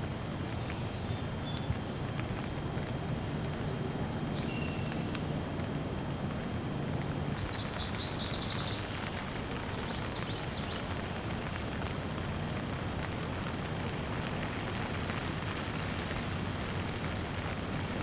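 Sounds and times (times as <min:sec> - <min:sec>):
steady rain falling: 0:00.0 - 0:18.0
bird chirping: 0:07.4 - 0:09.0.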